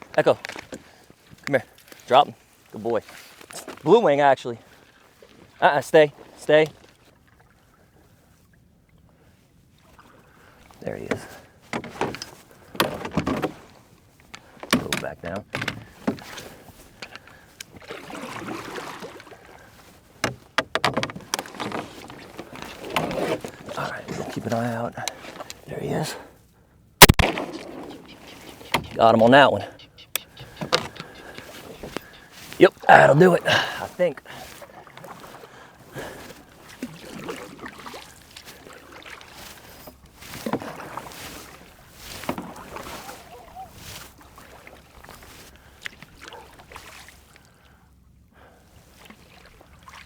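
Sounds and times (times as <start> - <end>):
water sloshing and splashing: 0.0 - 26.4, 27.0 - 50.0
sharp splashes or knocks: 11.0 - 24.5, 27.0 - 29.1.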